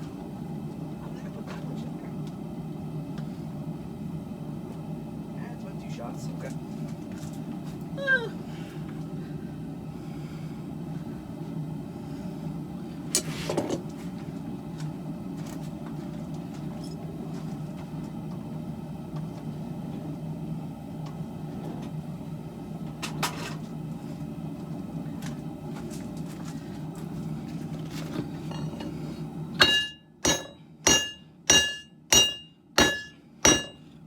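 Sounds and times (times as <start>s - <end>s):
forge burner roaring: 0.0s - 34.0s
sharp metal clanks: 29.6s - 33.8s.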